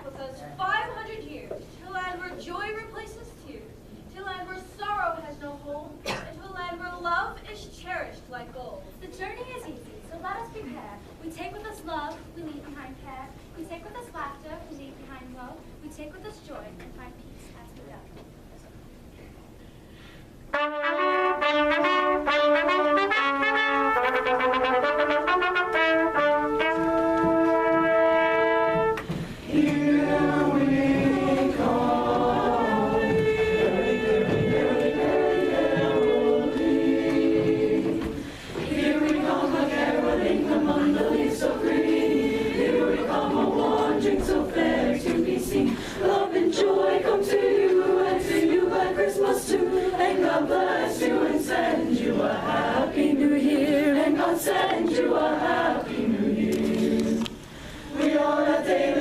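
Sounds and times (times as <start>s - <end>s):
brass and choir music: 20.4s - 57.3s, 57.9s - 59.0s
brass fanfare chords: 20.5s - 29.1s.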